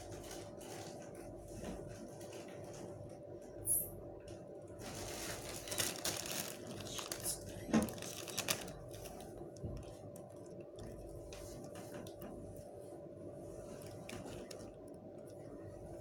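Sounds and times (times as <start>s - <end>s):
faint steady hum: 0.0s - 16.0s
rustling of small objects: 4.8s - 10.4s.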